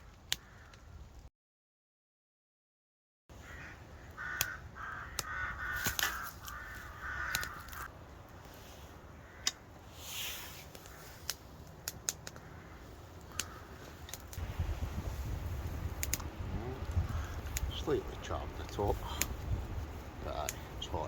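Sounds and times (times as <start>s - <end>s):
crow cawing: 0.3s - 0.9s, 3.4s - 7.9s, 9.0s - 9.8s, 10.7s - 11.5s, 12.2s - 14.3s, 16.8s - 17.8s
campfire popping and cracking: 3.6s - 21.0s.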